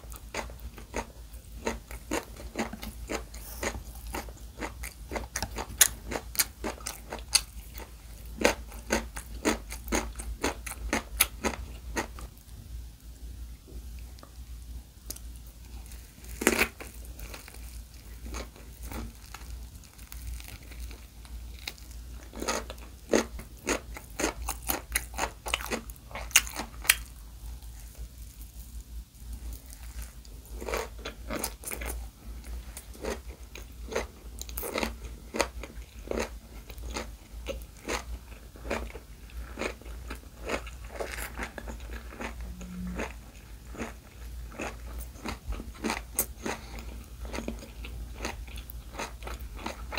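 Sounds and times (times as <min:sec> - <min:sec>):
crunchy biting and chewing: 0:00.0 - 0:12.3, 0:15.1 - 0:28.7, 0:29.3 - 0:49.9
faint low hum: 0:00.0 - 0:49.9.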